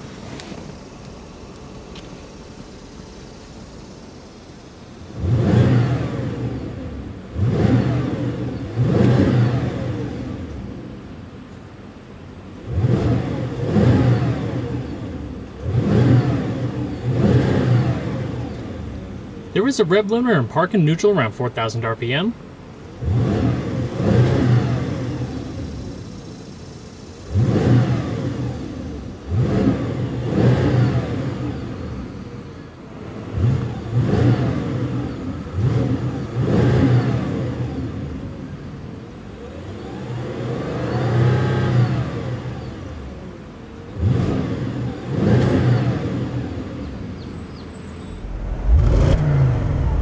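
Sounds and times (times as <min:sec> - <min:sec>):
engine revving: 0:05.0 - 0:10.8, 0:12.6 - 0:19.1, 0:22.9 - 0:32.3, 0:33.0 - 0:38.5, 0:39.3 - 0:50.0.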